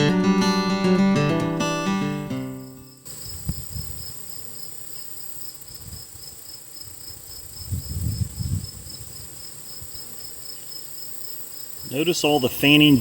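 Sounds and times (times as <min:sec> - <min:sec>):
high pulsing insect trill: 0:02.5 - 0:12.6.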